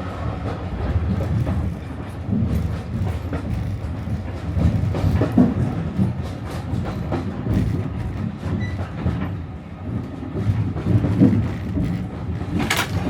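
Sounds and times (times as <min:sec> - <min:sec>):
train wheels rumbling: 0:00.0 - 0:13.0
knocks over rail joints: 0:11.0 - 0:13.0.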